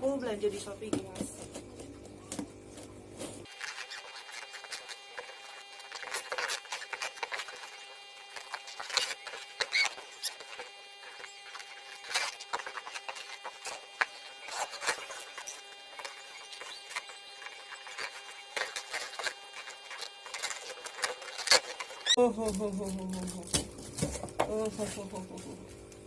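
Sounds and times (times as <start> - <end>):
short squeaks: 8.4 - 22.2.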